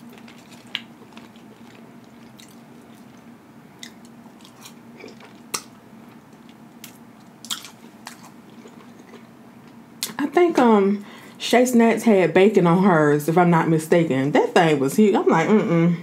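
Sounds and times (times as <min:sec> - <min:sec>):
person chewing fries: 0:00.0 - 0:09.8
faint steady hum: 0:00.0 - 0:16.0.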